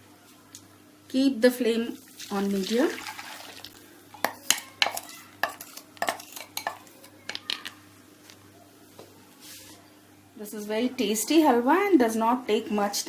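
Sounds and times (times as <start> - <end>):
utensil scraping a wok: 4.3 - 6.8.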